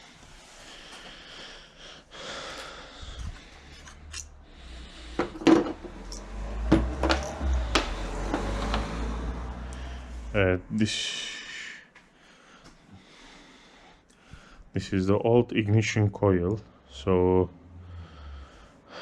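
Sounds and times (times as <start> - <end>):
tools clicking and knocking: 5.2 - 8.8.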